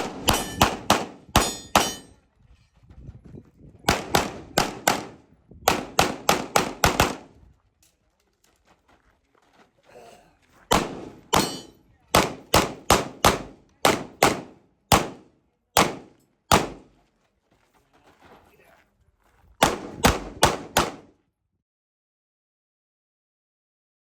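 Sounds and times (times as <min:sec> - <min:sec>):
pistol shots: 0:00.0 - 0:02.1, 0:03.9 - 0:07.3, 0:10.7 - 0:16.9, 0:19.6 - 0:21.1.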